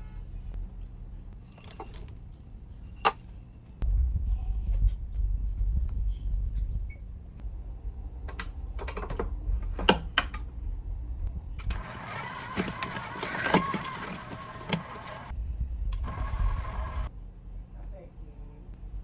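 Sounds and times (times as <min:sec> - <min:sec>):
stand mixer running: 0:11.7 - 0:15.3, 0:16.0 - 0:17.1.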